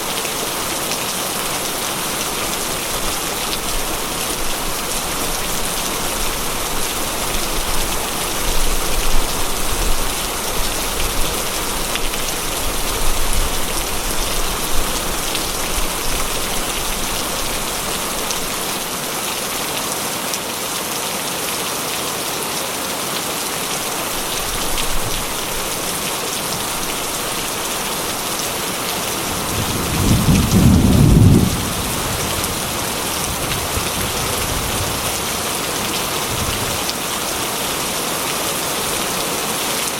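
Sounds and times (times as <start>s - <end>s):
heavy rain on metal roof: 0.0s - 39.9s
low rumble of thunder: 29.3s - 35.4s.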